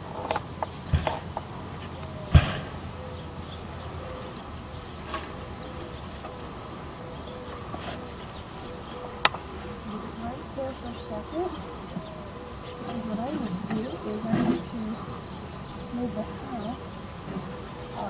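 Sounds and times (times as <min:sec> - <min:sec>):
honeybees buzzing: 0:00.0 - 0:18.0
knocks of wooden hive parts: 0:00.2 - 0:02.9.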